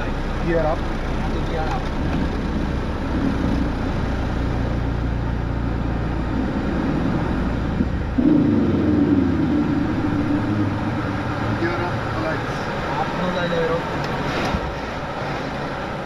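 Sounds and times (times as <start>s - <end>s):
jet engines rumbling: 0.0s - 16.0s
loud hum: 5.4s - 12.7s.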